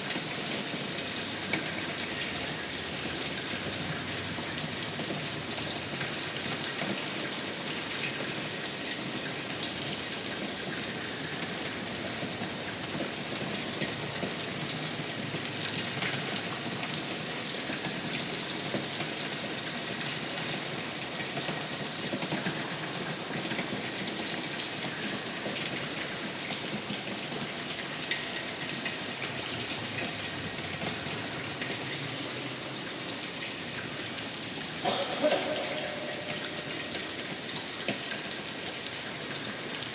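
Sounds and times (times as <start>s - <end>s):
heavy rain hissing: 29.8s - 37.9s.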